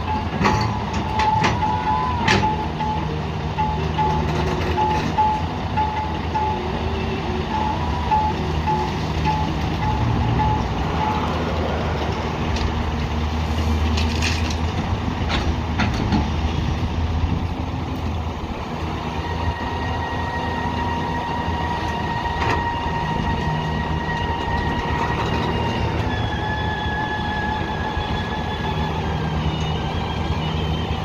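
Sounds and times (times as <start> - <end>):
reversing alarm beeping: 0.0 - 11.6, 19.2 - 31.0
diesel construction machinery rumbling: 0.0 - 31.0.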